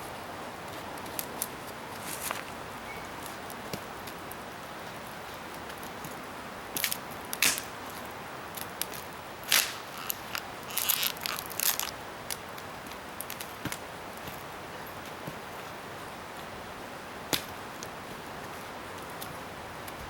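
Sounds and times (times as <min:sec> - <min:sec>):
wood crackling and snapping: 0:06.8 - 0:14.4.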